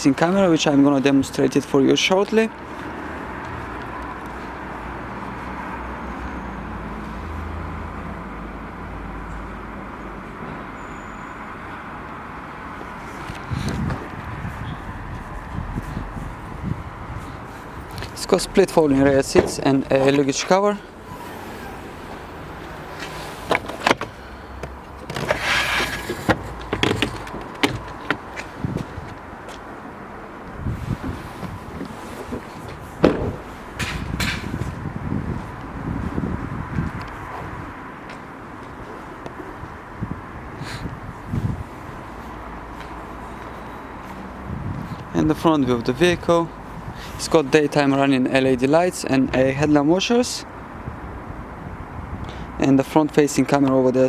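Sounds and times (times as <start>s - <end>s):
motor vehicles rumbling: 0.0s - 54.0s
luggage cover sliding whoosh: 19.0s - 24.2s, 25.2s - 27.2s
sharp clicks and knocks: 26.1s - 28.5s.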